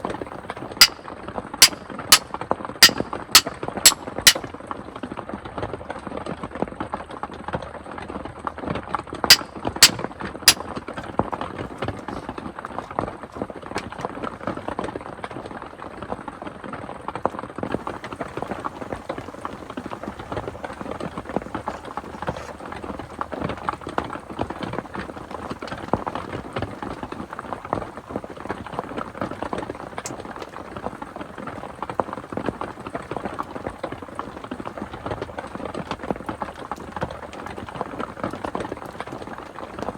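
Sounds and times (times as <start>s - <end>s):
sharp clicks: 2.8s - 4.4s
rain falling: 17.7s - 39.9s.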